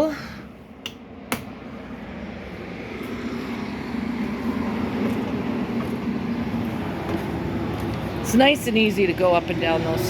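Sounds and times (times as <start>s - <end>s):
engine-like drone: 1.6s - 10.0s.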